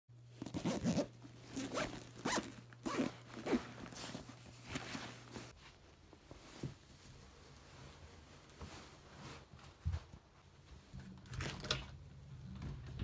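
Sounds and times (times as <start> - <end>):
zipper pulled: 0.4 - 5.5.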